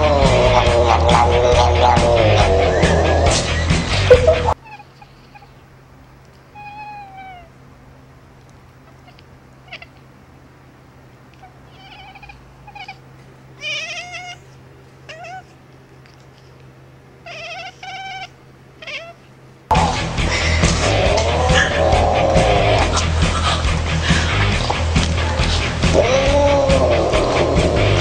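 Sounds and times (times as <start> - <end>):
cat meowing: 4.3 - 5.6, 6.5 - 7.6, 8.8 - 10.1, 11.3 - 15.6, 17.2 - 19.3.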